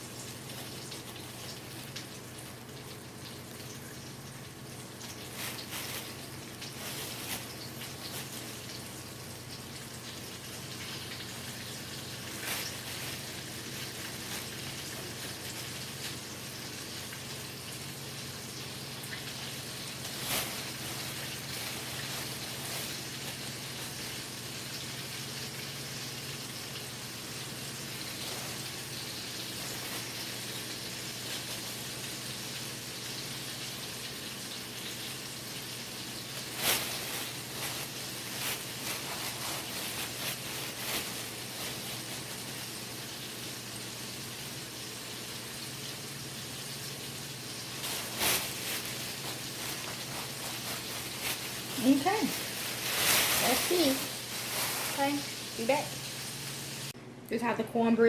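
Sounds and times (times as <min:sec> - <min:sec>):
chicken sizzling in hot grease: 0:00.0 - 0:57.0.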